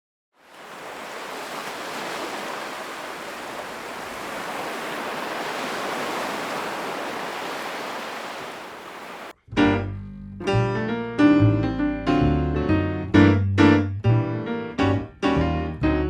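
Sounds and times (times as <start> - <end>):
surf breaking at water's edge: 0.4 - 9.3.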